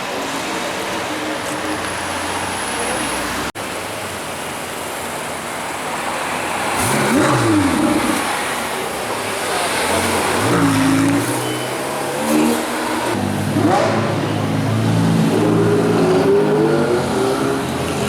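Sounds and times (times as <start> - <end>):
sports car engine revving: 6.7 - 18.0.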